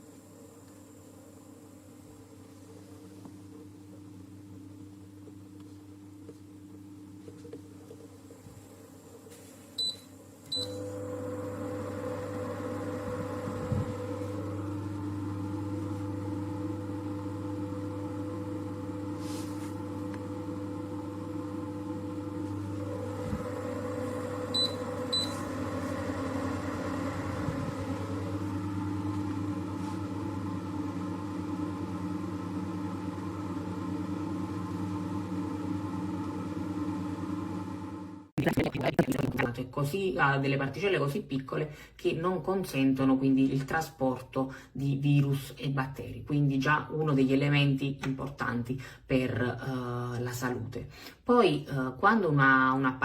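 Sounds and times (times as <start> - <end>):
humidifier fan humming: 0.0 - 38.2.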